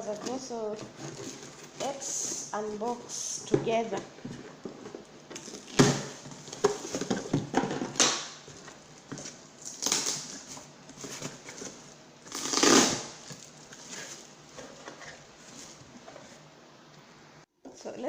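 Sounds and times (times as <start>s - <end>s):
packaging crinkling and rustling: 3.8s - 16.5s.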